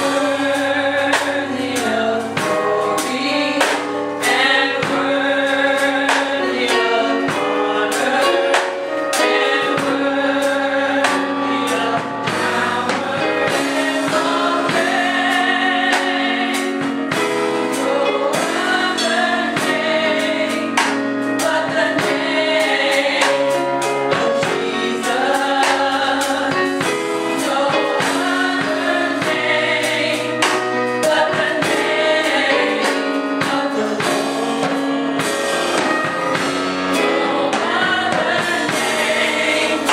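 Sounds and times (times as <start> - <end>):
band playing: 0.0 - 39.9
drums keeping a steady beat: 0.0 - 39.9
gospel choir singing: 0.0 - 39.9.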